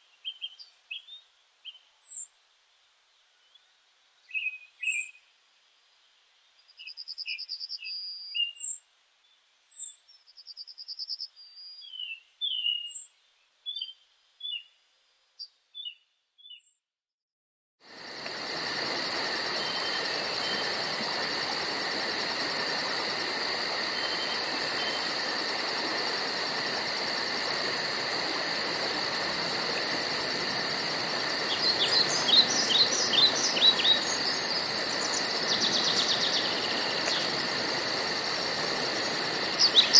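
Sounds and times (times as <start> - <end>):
songbirds chirping and trilling: 5.9 - 16.8, 31.3 - 37.4, 39.1 - 39.9
insects pulsing chorus: 17.8 - 39.9.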